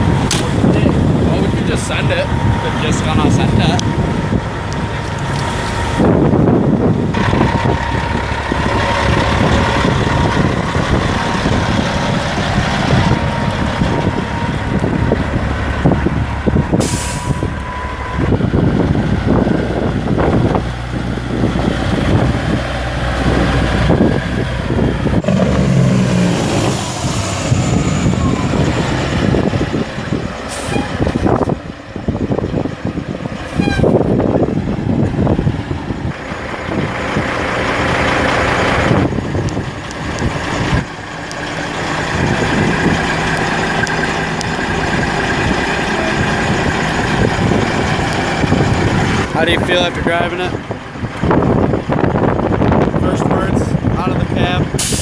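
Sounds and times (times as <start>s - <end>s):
diesel truck engines pulling away: 0.0s - 55.0s
air brake hisses: 16.8s - 17.5s, 54.8s - 55.0s.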